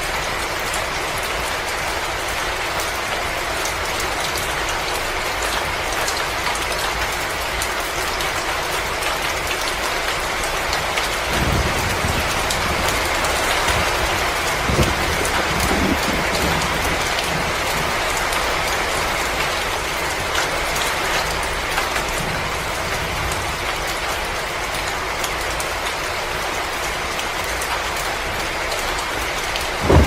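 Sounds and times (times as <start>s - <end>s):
wood fire crackling: 29.8s - 30.0s.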